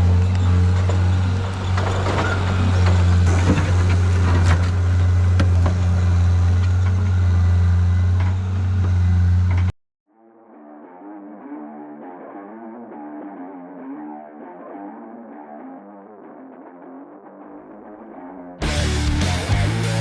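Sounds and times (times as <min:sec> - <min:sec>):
knocks and clatter: 0:00.0 - 0:07.2
diesel engine running: 0:00.0 - 0:09.7, 0:18.6 - 0:20.0
guitar music: 0:10.4 - 0:20.0.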